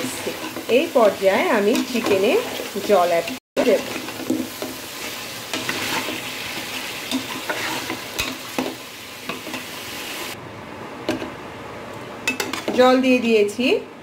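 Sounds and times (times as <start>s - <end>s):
metal spatula scraping pot: 0.0s - 8.7s
food sizzling in oil: 0.0s - 10.4s, 12.2s - 13.0s.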